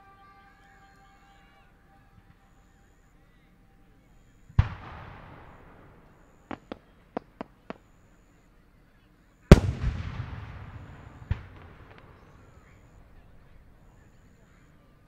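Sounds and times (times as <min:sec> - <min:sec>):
loud echoing firework bang: 0:04.6 - 0:07.8, 0:09.5 - 0:13.2
firework shells cracking: 0:04.6 - 0:07.9, 0:09.5 - 0:13.0.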